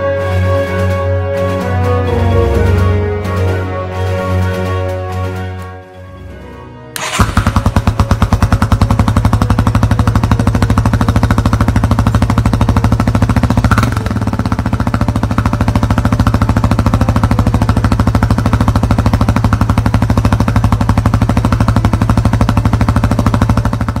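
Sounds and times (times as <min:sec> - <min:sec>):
motorcycle engine idling: 0:07.0 - 0:24.0.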